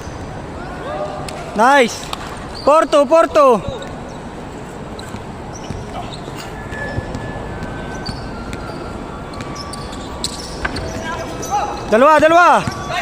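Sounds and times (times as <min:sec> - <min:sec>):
sneakers squeaking: 0:02.1 - 0:13.0
basketball bouncing on court: 0:05.1 - 0:06.0, 0:06.7 - 0:08.8, 0:12.0 - 0:13.0.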